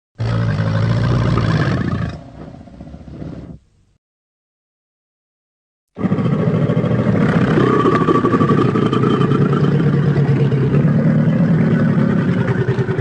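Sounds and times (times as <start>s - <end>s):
deep rumbling creature growl: 0.2s - 3.5s, 6.0s - 13.0s.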